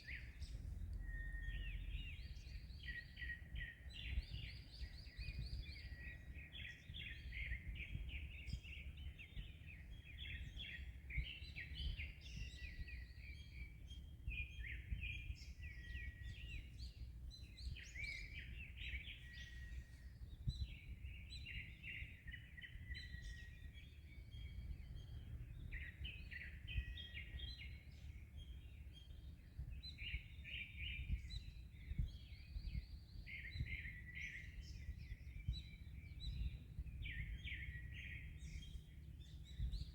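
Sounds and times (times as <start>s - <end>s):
wind rumble: 0.0s - 9.7s, 30.9s - 39.9s
small birds chirping: 0.0s - 39.9s.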